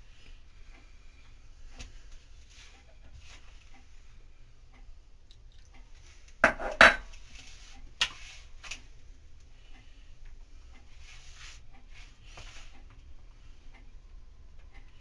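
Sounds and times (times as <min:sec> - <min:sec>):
metal plate knocking: 0:06.4 - 0:07.1.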